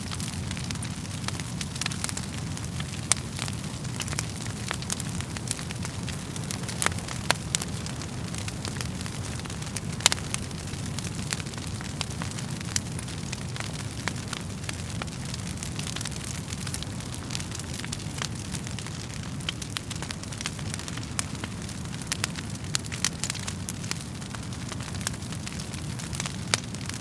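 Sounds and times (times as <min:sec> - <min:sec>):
fire popping and snapping: 0:00.0 - 0:27.0
low rush of flames: 0:00.0 - 0:27.0.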